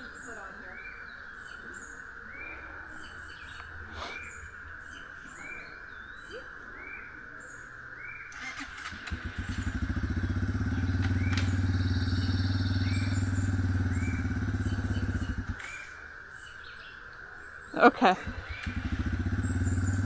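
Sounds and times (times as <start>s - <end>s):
birds chirping: 0.0s - 20.0s
dirt bike engine starting: 8.3s - 16.0s, 18.1s - 20.0s.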